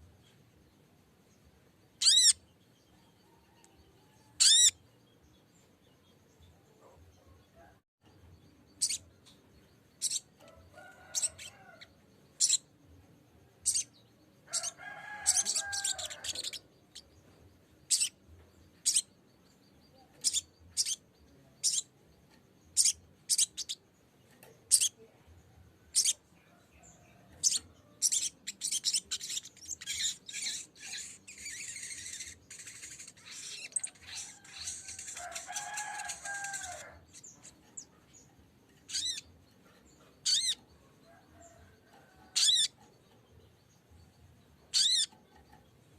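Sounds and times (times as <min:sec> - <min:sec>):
bird chattering song: 0:01.9 - 0:03.0, 0:04.2 - 0:07.4, 0:08.2 - 0:12.8, 0:13.5 - 0:25.2, 0:25.9 - 0:45.9
bird chip calls: 0:02.0 - 0:02.4, 0:04.4 - 0:04.8, 0:17.9 - 0:18.2, 0:38.9 - 0:39.2, 0:40.2 - 0:40.6, 0:42.3 - 0:42.8, 0:44.7 - 0:45.2.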